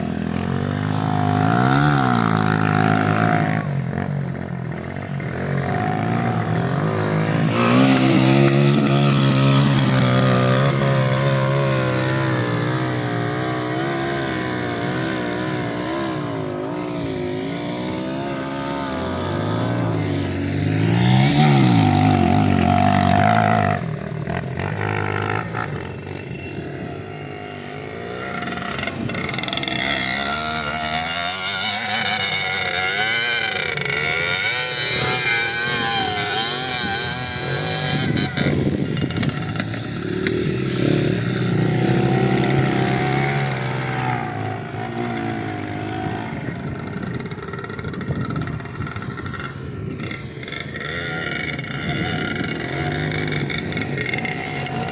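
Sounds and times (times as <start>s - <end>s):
motorcycle engine revving: 0.0s - 54.9s
rushing wind noise: 35.8s - 43.2s, 44.5s - 51.0s.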